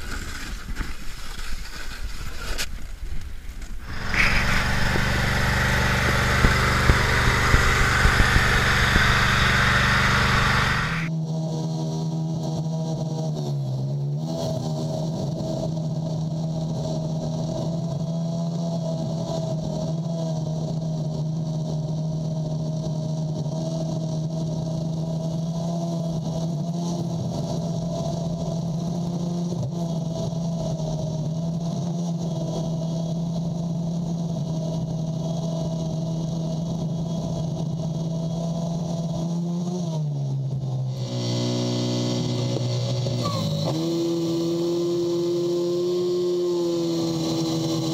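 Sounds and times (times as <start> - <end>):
higher hiss: 3.8 - 11.1
small engine running: 3.8 - 11.2, 14.3 - 47.9.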